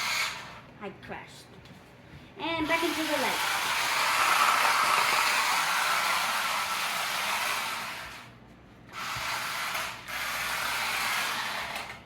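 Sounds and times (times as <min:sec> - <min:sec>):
electric motor whirring: 0:08.9 - 0:12.0.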